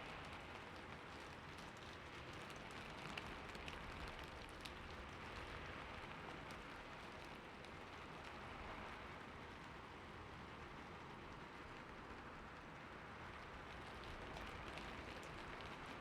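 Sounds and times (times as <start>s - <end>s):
soft rain pattering: 0.0s - 16.0s.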